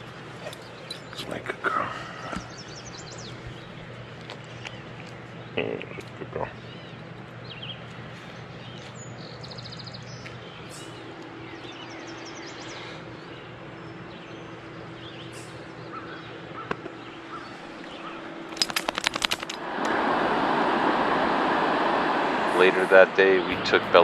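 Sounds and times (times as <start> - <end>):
birds chirping: 0.0 - 19.6, 22.5 - 24.0
faint steady hum: 0.0 - 24.0
sharp clicks: 18.5 - 20.0.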